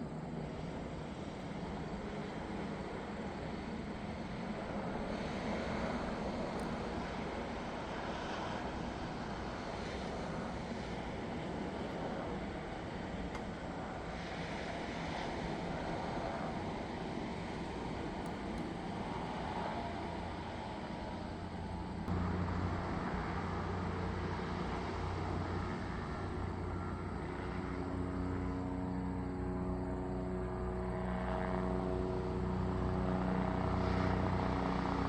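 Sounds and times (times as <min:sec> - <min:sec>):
outdoor background noise: 0:00.0 - 0:35.0
steady engine drone: 0:00.0 - 0:35.0
low steady hum: 0:15.7 - 0:35.0.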